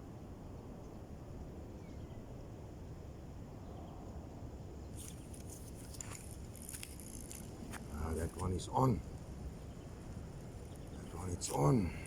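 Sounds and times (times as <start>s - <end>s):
sharp clicks and rustles: 5.0s - 8.5s.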